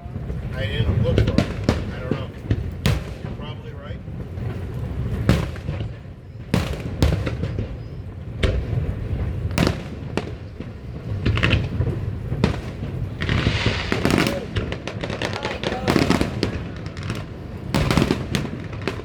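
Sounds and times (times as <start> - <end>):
fireworks booming bangs: 0.0 - 19.0
fireworks crackle: 0.0 - 19.0.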